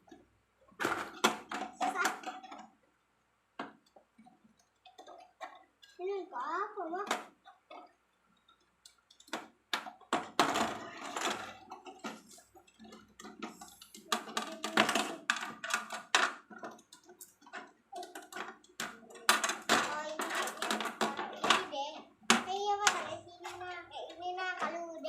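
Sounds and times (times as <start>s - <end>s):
plastic balls clicking and clattering: 0.0s - 25.0s.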